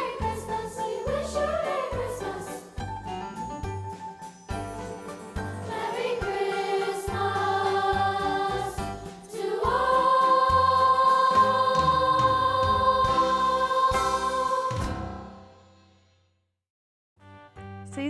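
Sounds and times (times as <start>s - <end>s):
choir singing: 0.0s - 2.8s, 5.6s - 15.6s.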